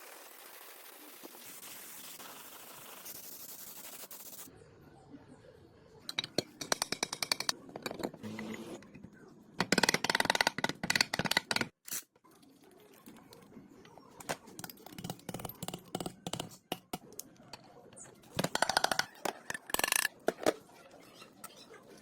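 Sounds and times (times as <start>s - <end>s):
irregular clicks and knocks: 6.1s - 8.2s, 9.6s - 11.8s.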